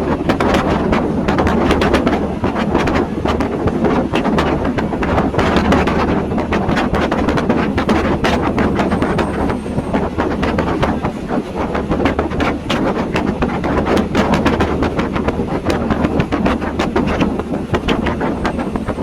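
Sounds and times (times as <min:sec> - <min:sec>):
sharp clicks and knocks: 0:00.0 - 0:19.0
train wheels rumbling on rails: 0:00.0 - 0:19.0.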